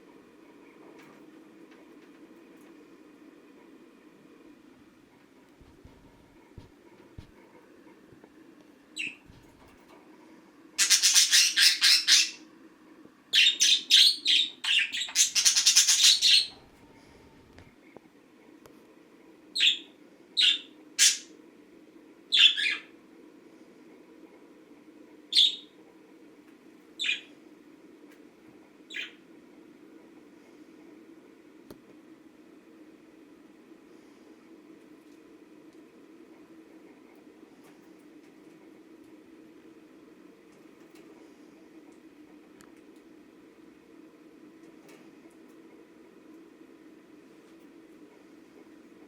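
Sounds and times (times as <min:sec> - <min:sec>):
faint low hum: 0:00.0 - 0:49.0
budgerigar squawking and chirping: 0:10.8 - 0:12.4, 0:13.3 - 0:16.5.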